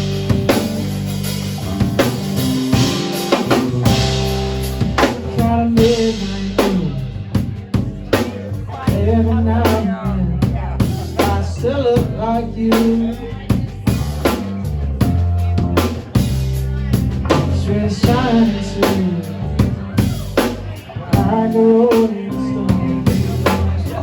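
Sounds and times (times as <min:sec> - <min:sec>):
sliding melodic line: 0:00.0 - 0:07.0
bass guitar notes: 0:00.0 - 0:24.0
drum kit: 0:00.0 - 0:24.0.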